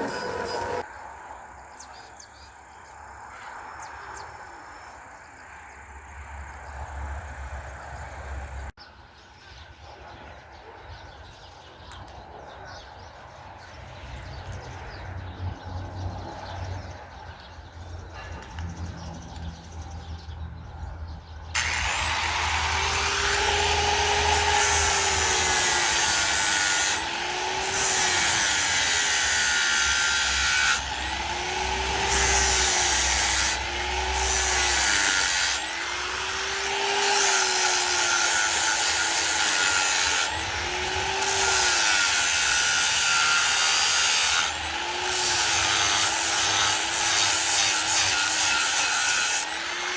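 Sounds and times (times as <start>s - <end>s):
power tool cutting wood: 0.0s - 0.8s, 21.6s - 49.9s.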